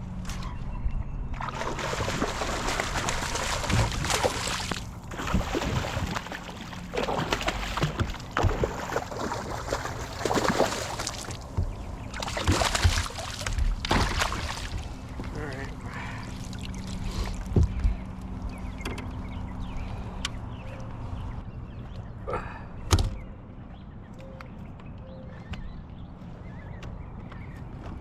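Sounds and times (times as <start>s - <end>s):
water splashing against kayak hull: 1.4s - 15.4s.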